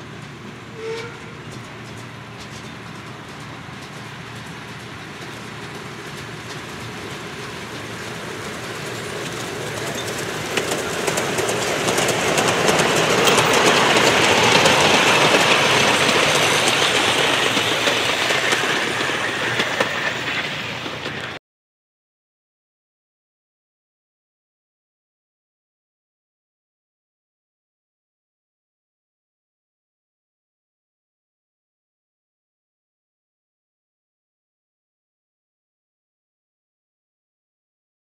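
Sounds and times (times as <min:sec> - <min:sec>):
miniature train running past: 0:00.0 - 0:21.4
wheels clicking over rail joints: 0:00.1 - 0:21.4.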